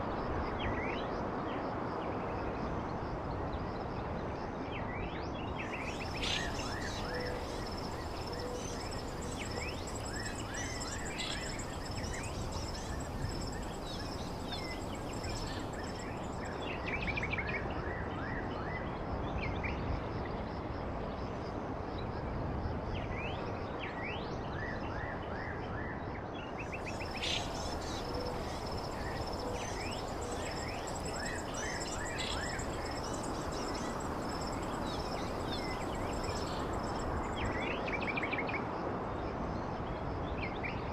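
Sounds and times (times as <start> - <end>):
small birds chirping and trilling: 5.6 - 16.8, 26.7 - 37.7
background hiss: 5.7 - 16.8, 26.7 - 37.8.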